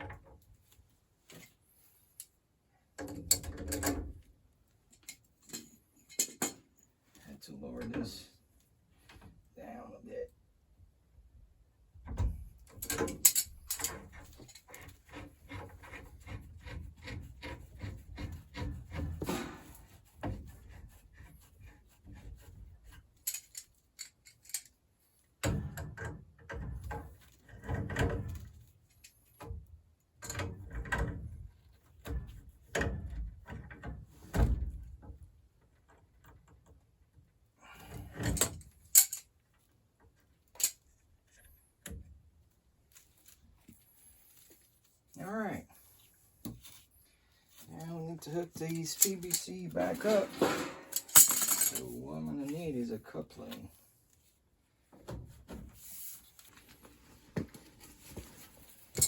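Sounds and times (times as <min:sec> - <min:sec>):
rubbing and scraping: 0:13.5 - 0:24.0, 0:42.6 - 0:59.0.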